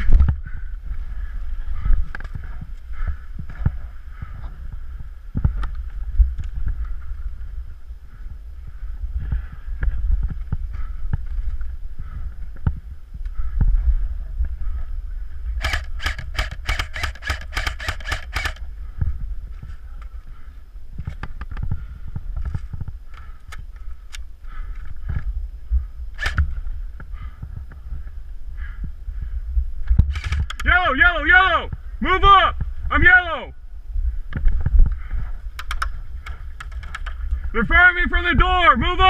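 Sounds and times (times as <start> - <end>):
wind rumble on microphone: 0.0 - 30.7, 31.6 - 39.0
airsoft gun shots: 15.6 - 18.6.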